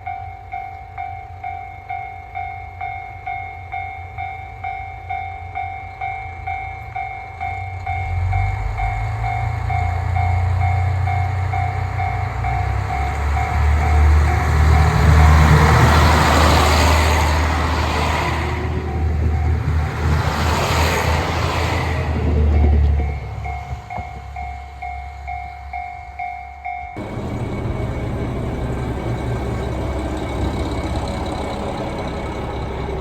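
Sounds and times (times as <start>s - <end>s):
train rumble: 6.8s - 33.0s
level crossing alarm dinging: 27.0s - 33.0s.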